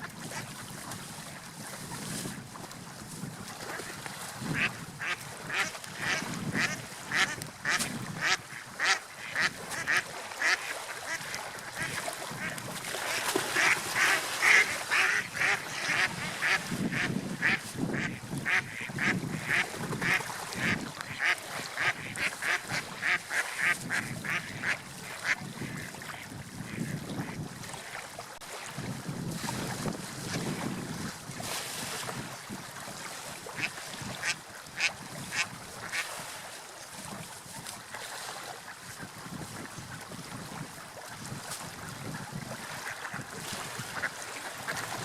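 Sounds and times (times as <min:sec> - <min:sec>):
waves: 0:00.0 - 0:45.0
wind: 0:00.0 - 0:45.0.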